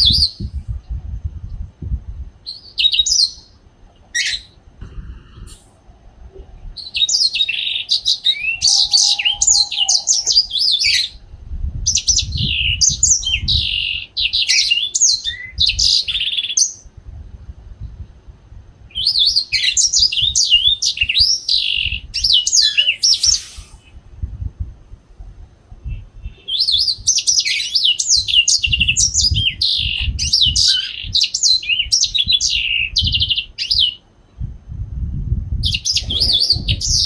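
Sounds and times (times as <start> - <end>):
young songbird singing: 0.0 - 0.8, 2.4 - 4.6, 6.4 - 17.0, 18.8 - 24.0, 25.8 - 34.5, 35.6 - 37.0.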